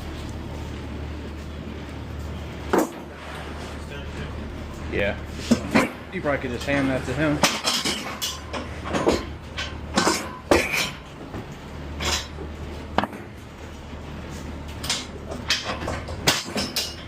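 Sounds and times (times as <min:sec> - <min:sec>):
freight knocking and clanking: 0:06.6 - 0:13.4, 0:14.7 - 0:17.0.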